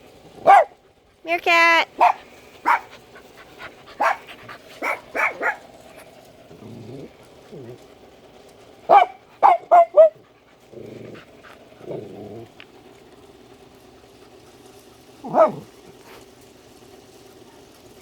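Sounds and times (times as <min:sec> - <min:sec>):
dog barking: 0:00.4 - 0:00.8, 0:02.0 - 0:02.9, 0:04.0 - 0:05.6, 0:08.9 - 0:10.2, 0:15.2 - 0:15.7.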